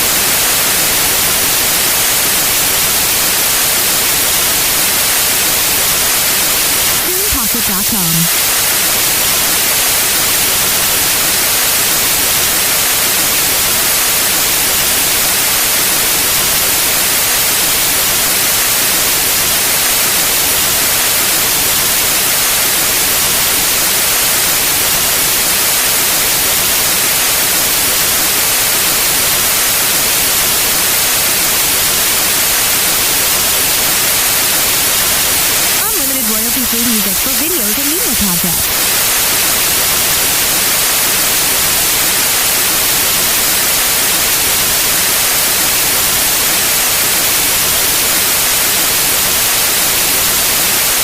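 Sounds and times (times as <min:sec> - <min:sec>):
white noise hiss: 0:00.0 - 0:51.0.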